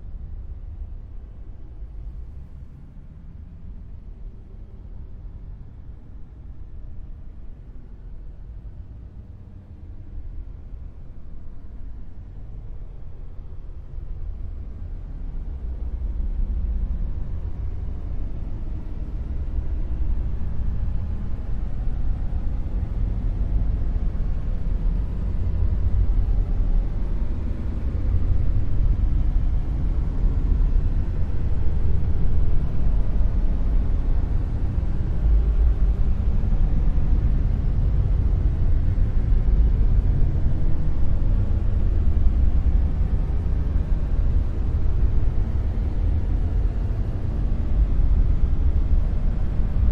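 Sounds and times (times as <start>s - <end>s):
deep rumbling noise: 13.4s - 49.9s.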